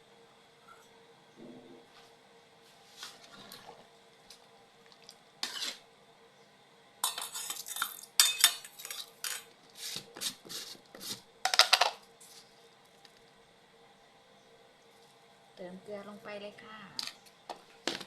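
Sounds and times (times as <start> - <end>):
utensil scraping cooking pot: 5.4 - 5.8.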